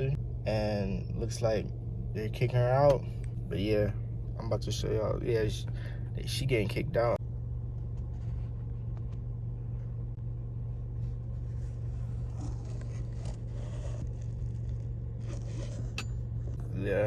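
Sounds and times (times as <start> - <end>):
machine droning: 0.0 - 17.0
rustling and scraping handling: 7.8 - 10.1, 10.7 - 17.0.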